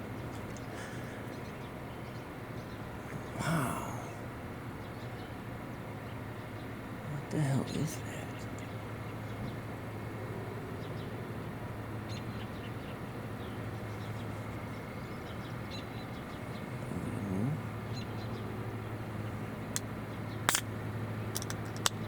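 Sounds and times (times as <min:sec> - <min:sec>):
steady low hum: 0:00.0 - 0:22.0
sharp click: 0:20.5 - 0:20.7.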